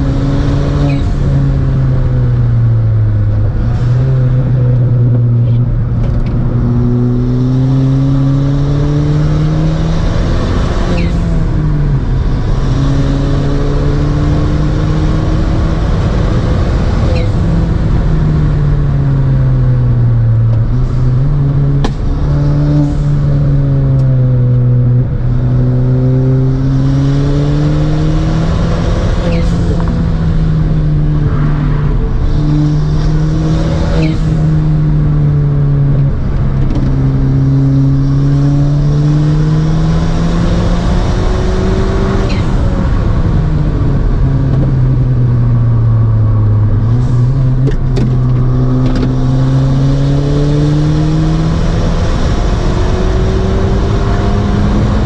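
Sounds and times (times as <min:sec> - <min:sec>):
turbocharged car engine accelerating: 0:00.0 - 0:55.0.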